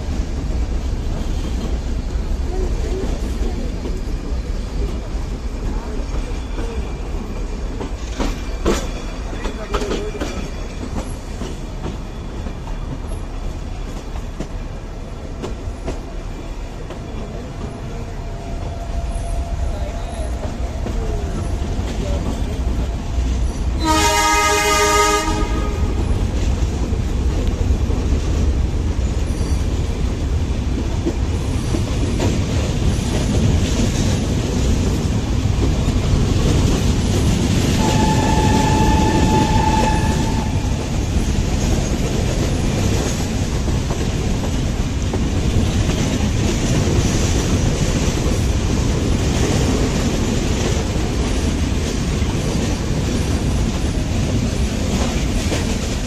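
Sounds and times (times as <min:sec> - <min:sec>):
train rumble and wheel clatter: 0:00.0 - 0:56.0
train horn: 0:23.8 - 0:26.2, 0:37.7 - 0:40.9.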